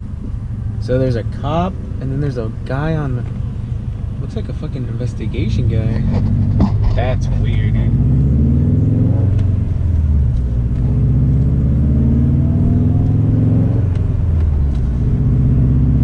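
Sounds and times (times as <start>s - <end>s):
car engine droning: 0.0s - 16.0s.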